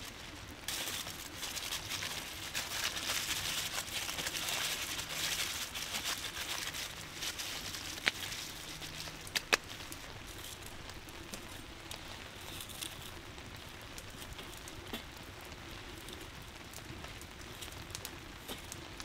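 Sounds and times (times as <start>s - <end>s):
campfire crackling: 0.0s - 19.0s
rain pattering: 0.0s - 19.0s
sharp snaps: 9.2s - 10.0s.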